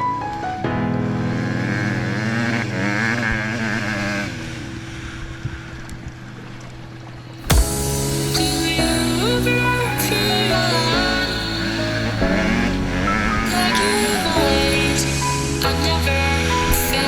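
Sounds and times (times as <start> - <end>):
loud music: 7.4 - 17.0.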